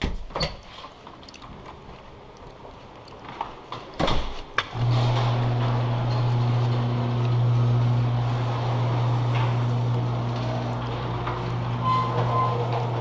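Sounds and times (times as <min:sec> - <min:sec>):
low-pitched vehicle tone: 0:04.8 - 0:13.0.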